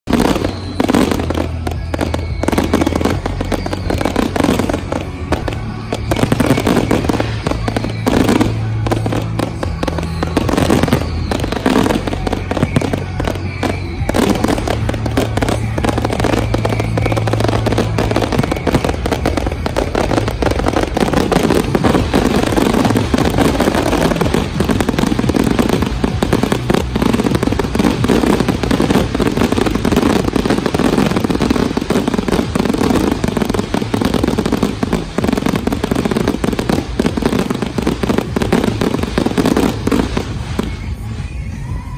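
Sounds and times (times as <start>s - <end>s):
fireworks popping and crackling: 0.0s - 41.9s.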